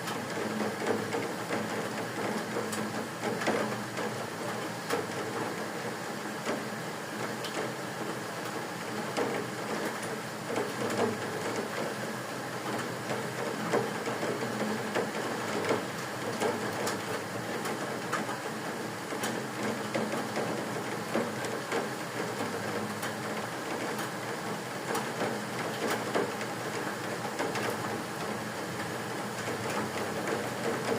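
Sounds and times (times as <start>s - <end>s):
rain hiss: 0.0s - 30.9s.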